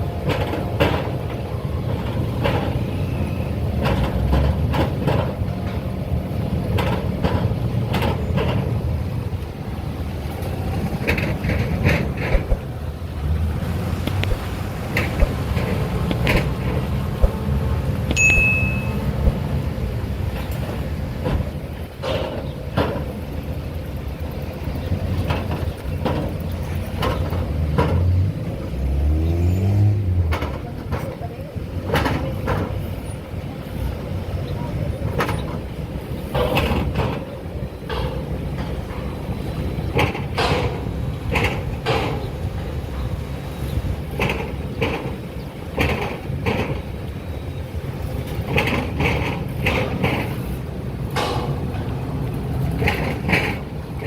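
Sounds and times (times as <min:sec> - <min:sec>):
vehicle engine rumbling: 0:00.0 - 0:54.0
irregular clanks: 0:00.2 - 0:54.0
sharp knocks: 0:14.0 - 0:19.5.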